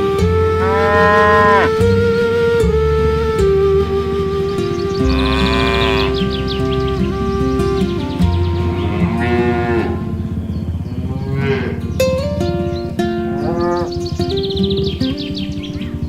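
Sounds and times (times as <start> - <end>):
background music with held notes: 0.0 - 16.0
cattle mooing: 0.4 - 1.9, 5.0 - 6.4, 8.4 - 12.3, 13.3 - 14.0.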